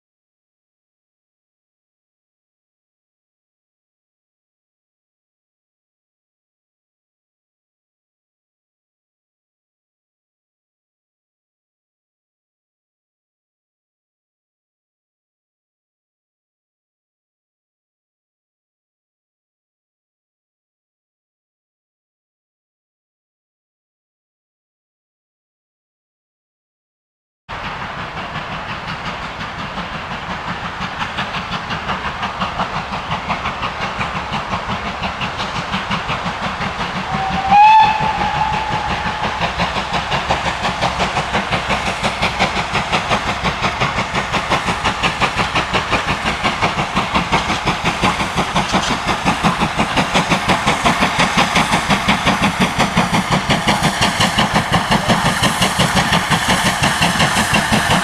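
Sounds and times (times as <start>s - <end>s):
steam locomotive exhaust beats: 27.5s - 58.0s
steam whistle blast: 37.1s - 39.8s.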